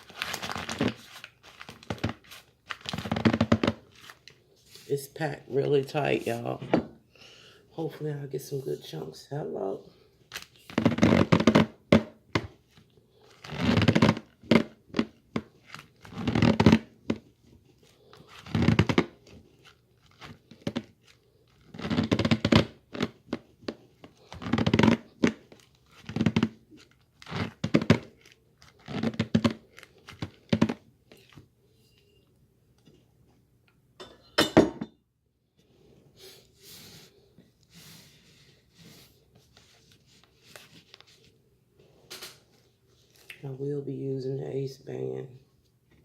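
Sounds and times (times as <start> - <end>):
paper bag crumpling: 0.0 - 4.9.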